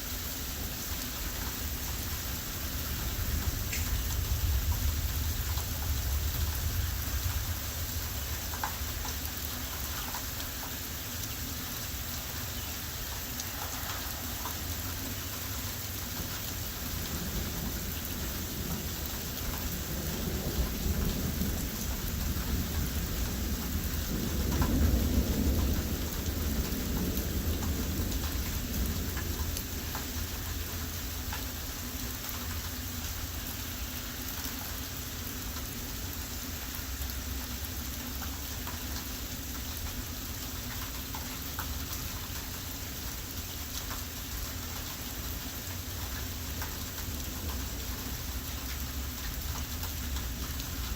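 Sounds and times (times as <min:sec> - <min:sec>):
heavy rain falling: 0:00.0 - 0:50.9
wind rumbling on microphone: 0:01.9 - 0:09.2, 0:16.6 - 0:30.5.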